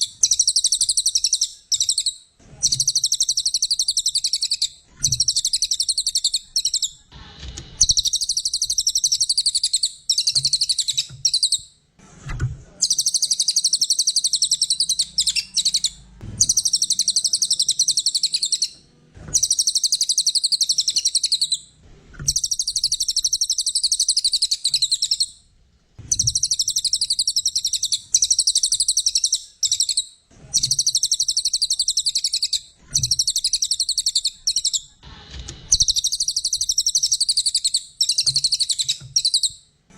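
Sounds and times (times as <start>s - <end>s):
songbird twittering trills: 12.8s - 18.8s.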